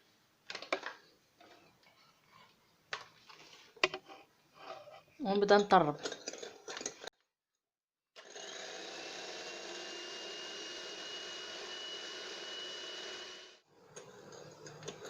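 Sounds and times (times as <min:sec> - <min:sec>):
electric hand mixer whining: 0:08.2 - 0:15.0.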